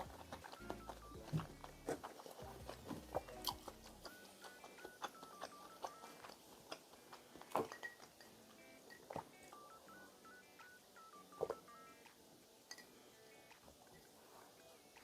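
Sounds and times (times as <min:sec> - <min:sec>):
mouth sounds of eating: 0:00.0 - 0:10.4
faint beeping melody music: 0:00.0 - 0:15.0.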